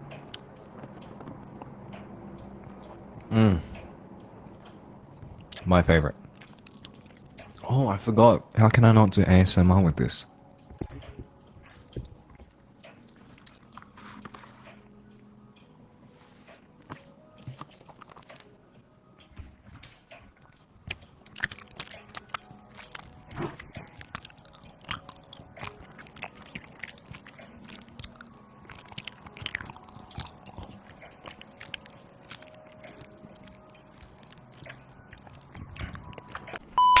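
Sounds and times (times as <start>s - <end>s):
crunchy bites and chewing: 20.9s - 36.6s.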